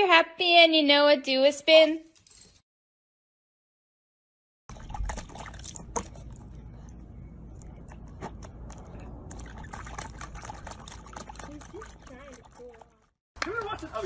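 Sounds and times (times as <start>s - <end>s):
water splashing in plastic tub: 4.7s - 6.4s, 8.3s - 14.0s.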